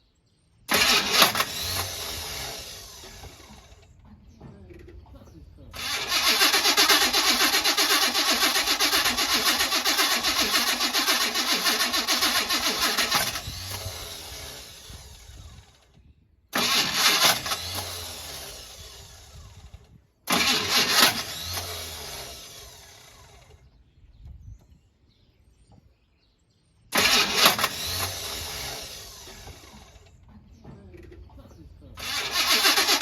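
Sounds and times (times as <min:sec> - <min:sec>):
engine starter cranking: 0:00.7 - 0:04.0, 0:05.7 - 0:15.9, 0:16.5 - 0:23.7, 0:26.9 - 0:30.3, 0:31.9 - 0:33.0.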